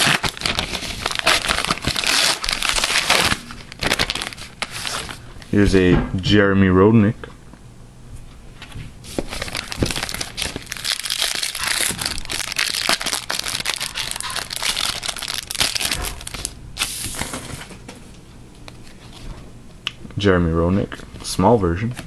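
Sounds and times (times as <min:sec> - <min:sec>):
wrapper crinkling: 0:00.0 - 0:05.2, 0:09.1 - 0:16.9.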